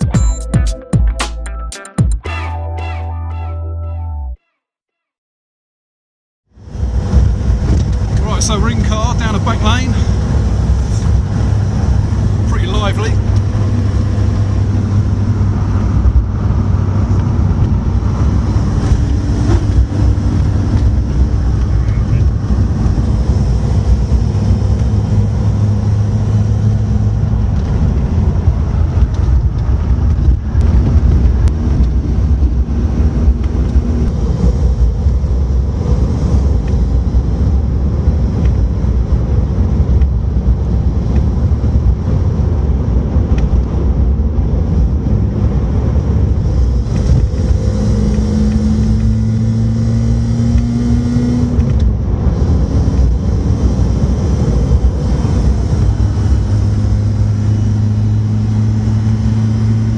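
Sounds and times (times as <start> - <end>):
sports car engine rumbling: 6.6 - 59.9.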